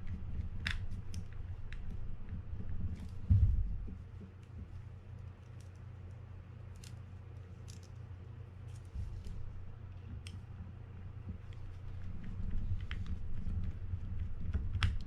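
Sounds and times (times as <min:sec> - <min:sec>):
steady low hum: 0:00.0 - 0:15.0
low thump: 0:03.2 - 0:04.0.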